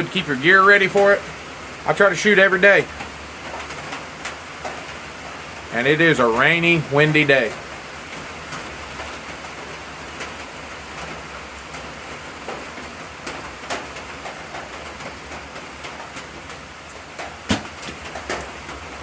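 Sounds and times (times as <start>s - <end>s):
steady rain falling: 0.0s - 19.0s
sharp knock: 17.5s - 18.0s.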